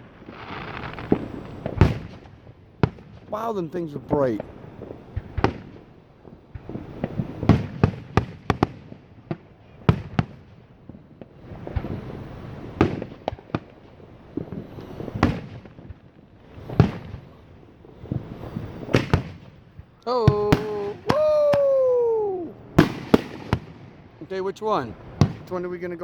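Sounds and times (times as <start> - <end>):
crackling hiss: 0.0 - 26.0
fireworks bangs and cracks: 0.0 - 26.0.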